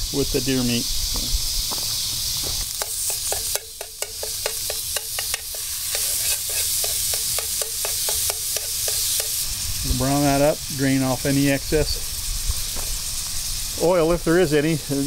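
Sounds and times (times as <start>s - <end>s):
meat sizzling in a frying pan: 0.0s - 15.0s
utensil knocking against pan: 2.8s - 6.0s, 6.8s - 9.3s.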